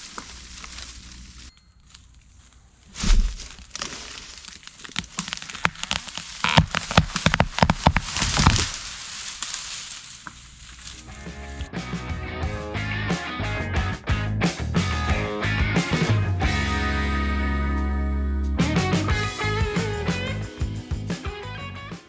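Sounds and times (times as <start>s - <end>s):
wood cracking and snapping: 3.0s - 11.7s.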